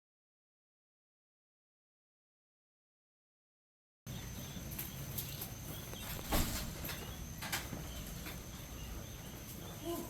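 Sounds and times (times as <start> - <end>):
young guinea fowl peeping: 4.1 - 10.0.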